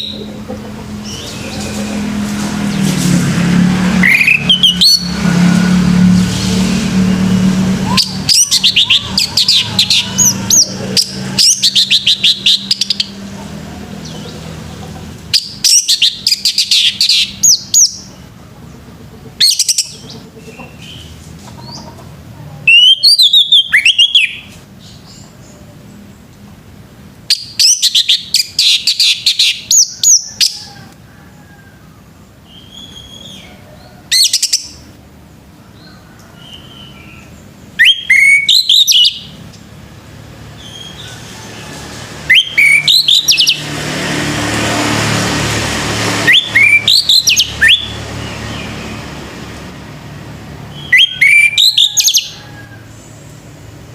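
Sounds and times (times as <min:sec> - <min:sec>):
thrush singing whistled phrases: 0:04.0 - 0:05.2, 0:07.8 - 0:13.1, 0:22.7 - 0:24.5, 0:27.3 - 0:30.0, 0:37.8 - 0:39.4, 0:42.2 - 0:43.6, 0:46.2 - 0:48.1, 0:50.7 - 0:52.4.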